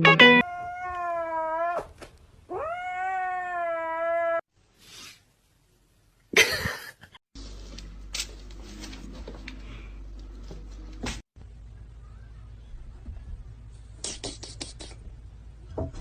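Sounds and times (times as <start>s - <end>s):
cat yowling: 0.4s - 4.4s.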